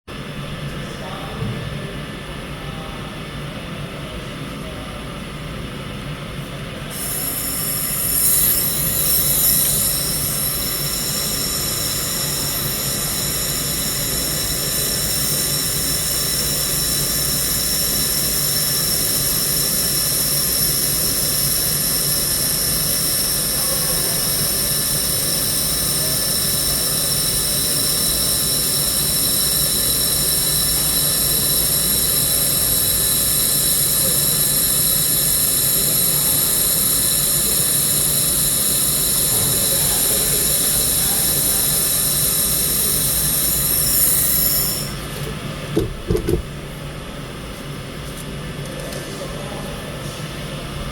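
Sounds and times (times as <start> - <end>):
laser welding machine humming: 5.1 - 50.9
hiss: 6.9 - 45.1
high whining tones: 6.9 - 46.7.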